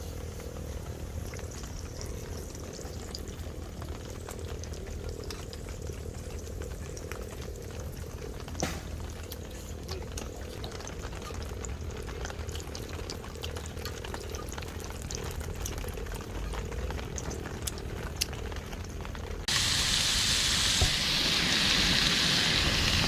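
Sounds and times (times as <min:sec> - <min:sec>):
food sizzling in a pan: 0:19.5 - 0:23.0
loud steady hiss: 0:19.5 - 0:23.0.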